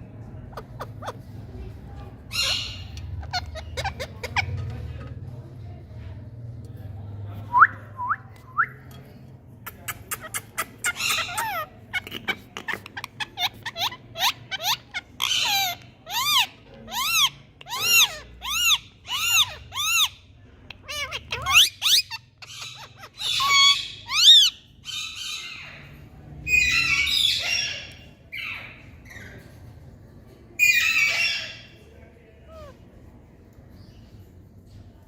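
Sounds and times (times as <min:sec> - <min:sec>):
parakeet screeching: 0:00.5 - 0:01.3, 0:02.2 - 0:04.7, 0:10.3 - 0:20.2, 0:20.8 - 0:25.7.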